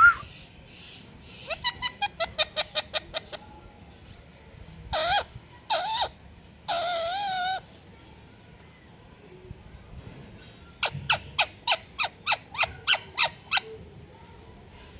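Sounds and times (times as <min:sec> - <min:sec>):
parrot chirping and calling: 0:01.4 - 0:03.4, 0:05.0 - 0:07.6, 0:10.8 - 0:13.7.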